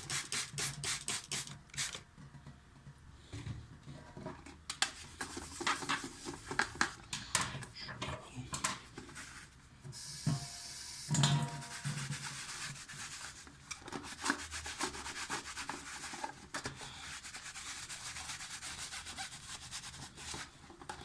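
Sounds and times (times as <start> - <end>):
scrubber scrubbing a filter: 10.0 - 20.7.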